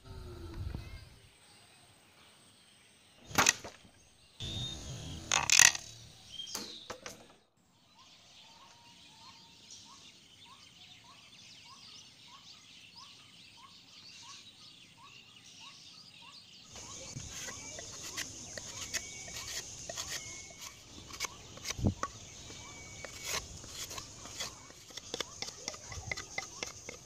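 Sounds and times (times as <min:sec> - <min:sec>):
outdoor background hiss: 0:00.0 - 0:27.0
knife scraping bark off stick: 0:16.8 - 0:27.0.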